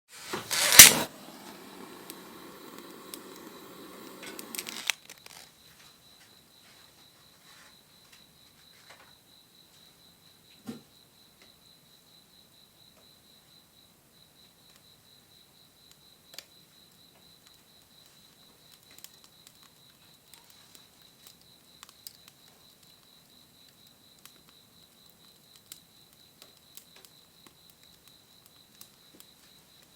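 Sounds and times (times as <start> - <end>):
campfire crackling and popping: 0.1 - 5.5, 18.7 - 20.5, 21.2 - 29.9
rustling with small crackles: 0.2 - 5.9
insect trilling: 0.5 - 5.5
cricket chirring: 0.5 - 10.2.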